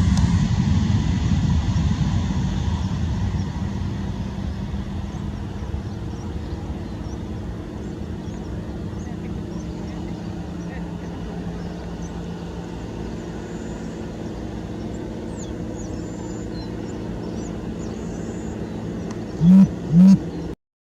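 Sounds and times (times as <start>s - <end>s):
aircraft engines droning: 0.0s - 20.6s
loud low honk-like tones: 19.4s - 20.3s.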